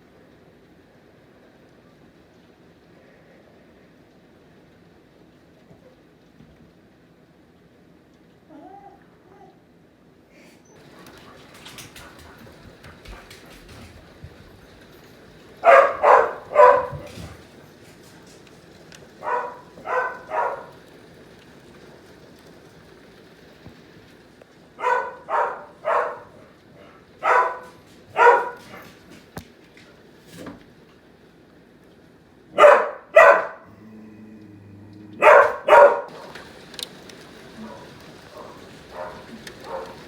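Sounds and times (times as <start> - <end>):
faint steady hiss: 0.0 - 40.0
dog barking: 10.8 - 14.4, 15.4 - 17.6, 19.0 - 20.9, 24.8 - 29.1, 32.5 - 33.7, 35.2 - 36.5, 37.5 - 40.0.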